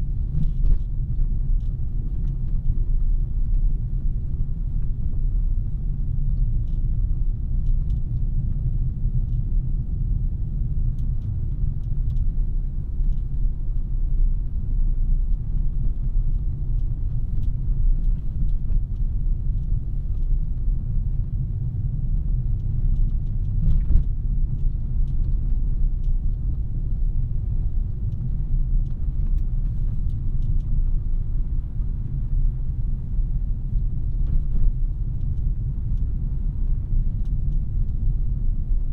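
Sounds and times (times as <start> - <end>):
road and tyre noise: 0.0 - 38.9
faint ticks: 11.0 - 12.3, 28.0 - 31.3.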